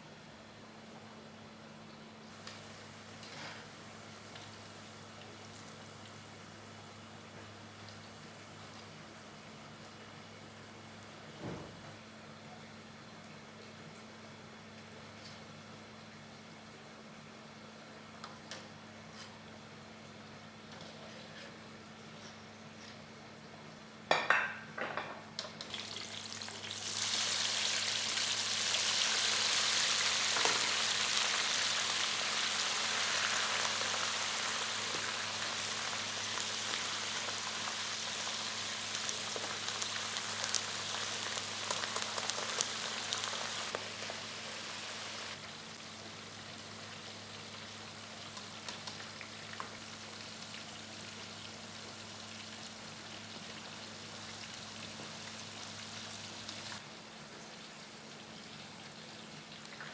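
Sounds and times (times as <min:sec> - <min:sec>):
food sizzling in hot oil: 0:25.7 - 0:56.8.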